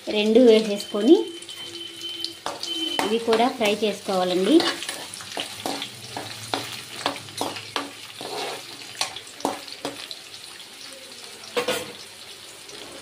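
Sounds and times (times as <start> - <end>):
onion sizzling in oil: 0.0 - 13.0
spatula scraping metal pan: 2.4 - 9.7.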